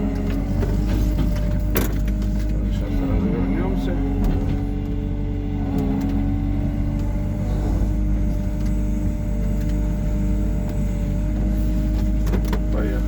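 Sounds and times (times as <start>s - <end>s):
excavator diesel engine humming: 0.0s - 13.0s.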